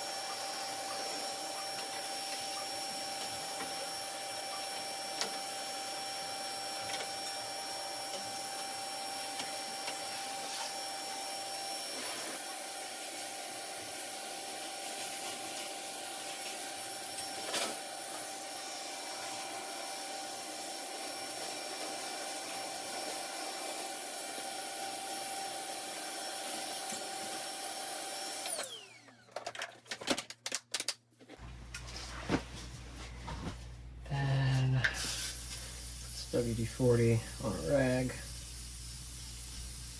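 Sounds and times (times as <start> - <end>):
vacuum cleaner motor whining: 0.0 - 29.7.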